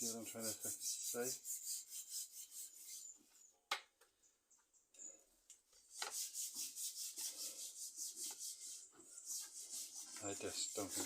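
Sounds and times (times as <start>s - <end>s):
rhythmic hand scraping strokes: 0.0s - 3.2s, 5.8s - 11.0s.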